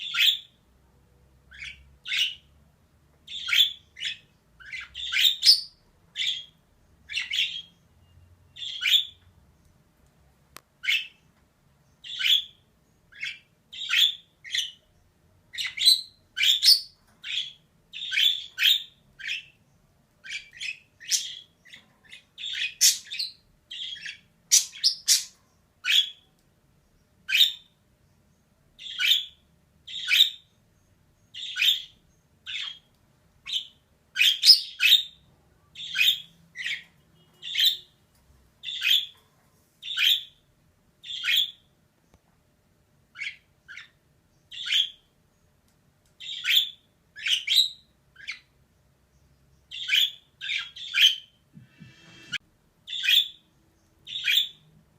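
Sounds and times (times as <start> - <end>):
budgerigar chirping: 0.0 - 0.6, 1.5 - 2.5, 3.3 - 7.8, 8.5 - 9.2, 10.8 - 11.2, 12.0 - 14.8, 15.5 - 19.6, 20.2 - 26.3, 27.3 - 27.7, 28.8 - 30.5, 31.4 - 35.2, 35.8 - 38.0, 38.6 - 39.1, 39.8 - 40.4, 41.0 - 41.7, 43.1 - 45.1, 46.2 - 48.5, 49.7 - 54.6.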